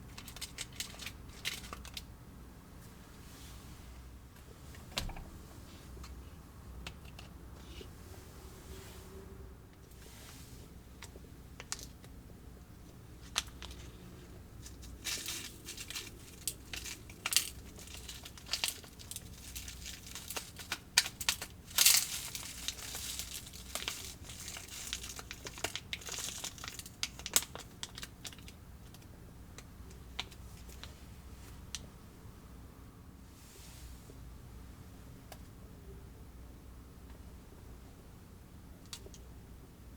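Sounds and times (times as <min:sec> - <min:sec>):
plastic packaging crinkling: 0:00.1 - 0:02.1, 0:13.2 - 0:29.0.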